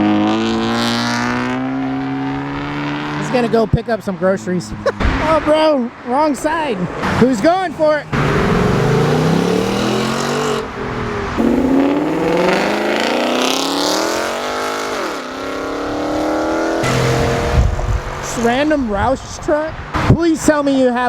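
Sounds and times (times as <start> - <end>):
car engine revving through gears: 0.0 - 3.6, 8.1 - 18.5.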